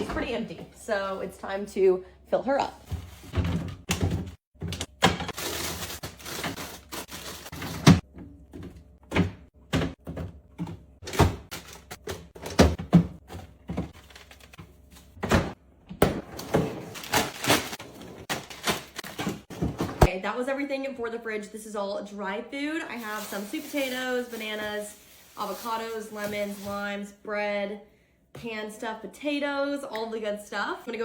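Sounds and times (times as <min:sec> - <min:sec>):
refrigerator door and drawers handled: 0:02.9 - 0:20.1
packaging rustling: 0:14.0 - 0:14.9, 0:16.8 - 0:19.4.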